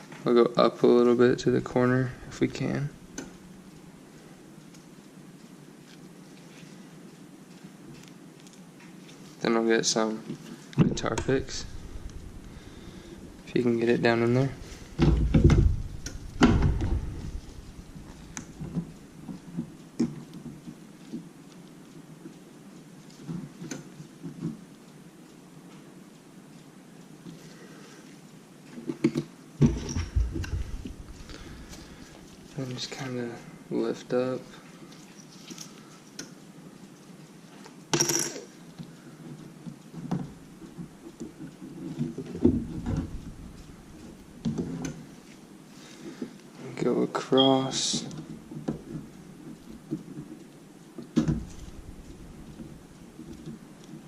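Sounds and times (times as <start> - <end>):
crackling scrape: 5.8 - 24.6
handling knocks: 10.8 - 19.7, 29.6 - 32.3
heavy thumps: 10.8 - 19.8, 29.6 - 32.6, 42.3 - 45.0, 51.1 - 53.7.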